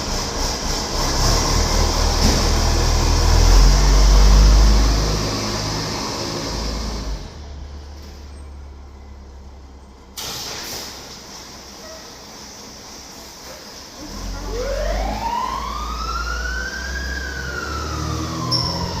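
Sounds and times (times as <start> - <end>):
fire truck diesel engine rumble: 0.0 - 19.0.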